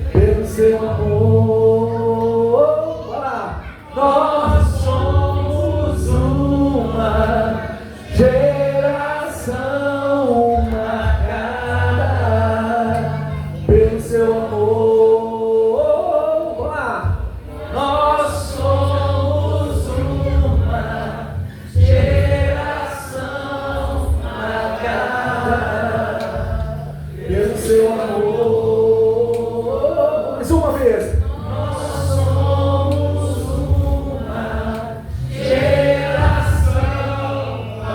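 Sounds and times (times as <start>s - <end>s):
voices singing: 0.0s - 37.9s
bass notes: 4.5s - 15.3s, 17.1s - 37.9s.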